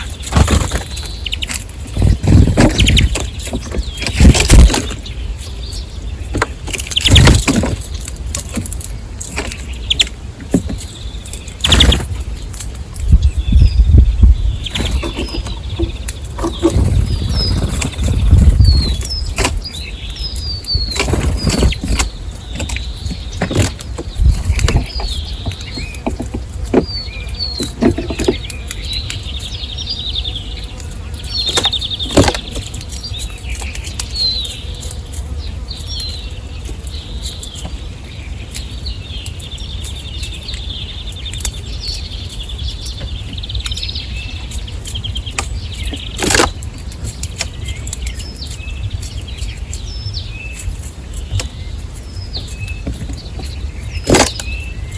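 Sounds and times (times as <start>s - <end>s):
wings fluttering: 0.0s - 5.2s, 6.3s - 27.0s
small birds chirping: 0.0s - 54.9s.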